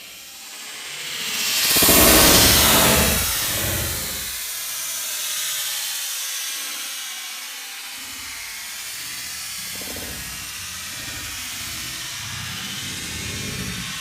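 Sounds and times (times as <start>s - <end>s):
rocket exhaust hissing: 1.5s - 4.4s, 9.0s - 14.0s.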